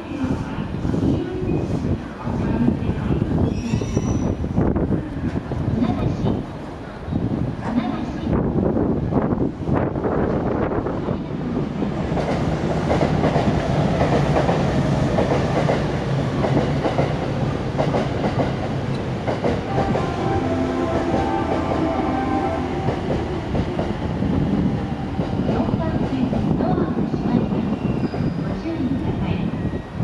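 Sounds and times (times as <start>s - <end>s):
train wheels clattering over rails: 12.0s - 20.1s.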